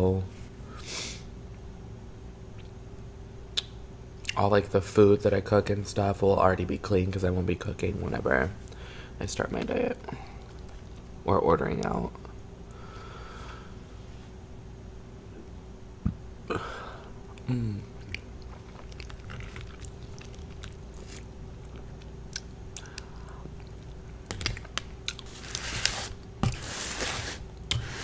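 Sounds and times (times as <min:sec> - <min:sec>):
faint steady hum: 0:00.0 - 0:28.0
chewing and mouth clicks: 0:17.3 - 0:25.3
paper plate scraping on cardboard: 0:25.3 - 0:28.0.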